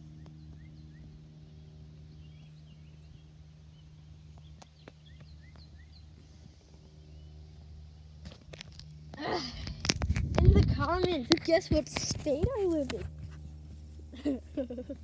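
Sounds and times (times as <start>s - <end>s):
small birds chirping: 0.0s - 7.8s
steady low hum: 0.0s - 15.0s.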